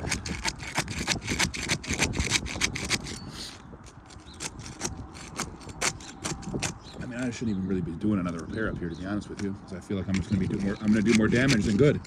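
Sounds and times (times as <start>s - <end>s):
putty knife scraping shingles: 0.0s - 6.8s, 10.1s - 12.0s.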